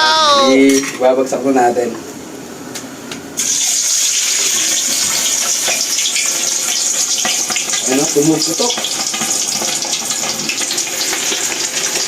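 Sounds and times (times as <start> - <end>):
meat frying in hot oil: 3.4 - 12.0
oil popping and crackling: 3.4 - 12.0.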